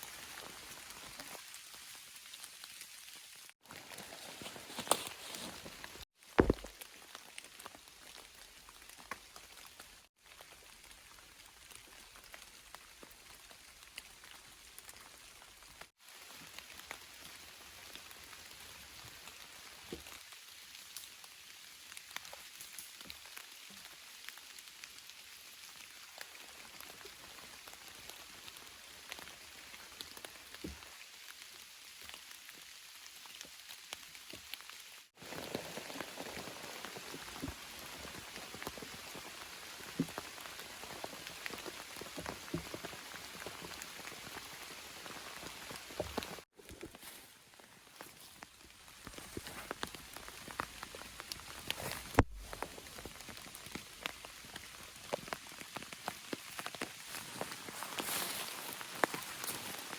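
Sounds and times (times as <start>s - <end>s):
rain drops pattering: 0.0s - 59.9s.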